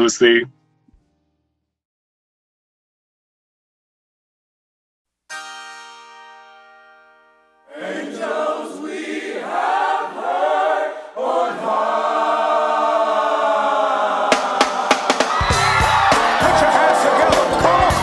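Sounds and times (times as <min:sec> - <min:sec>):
choir singing sustained notes: 0:07.7 - 0:18.0
sharp percussive hits: 0:14.3 - 0:18.0.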